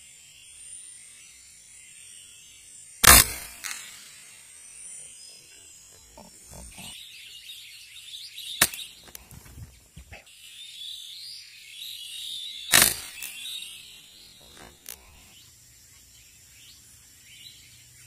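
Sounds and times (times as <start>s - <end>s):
air rifle shots: 3.0s - 4.2s, 12.7s - 13.4s
flock of birds chattering: 3.6s - 10.5s, 12.7s - 18.0s.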